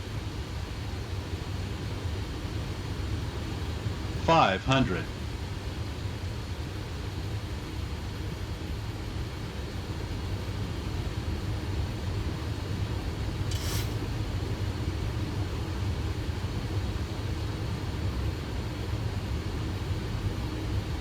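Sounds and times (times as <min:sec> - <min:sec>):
low rumble of airflow and engines: 0:00.0 - 0:21.0
brief hiss: 0:13.4 - 0:14.2.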